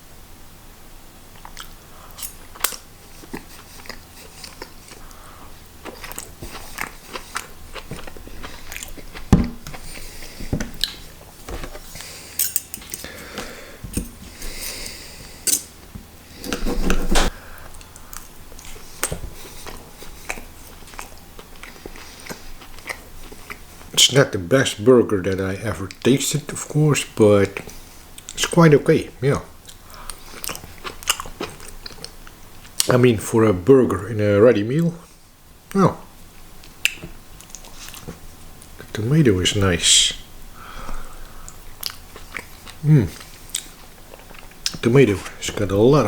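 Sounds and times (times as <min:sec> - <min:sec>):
person chewing food: 0:01.3 - 0:13.6, 0:16.3 - 0:23.9, 0:29.6 - 0:32.9, 0:36.6 - 0:38.9, 0:40.6 - 0:45.4.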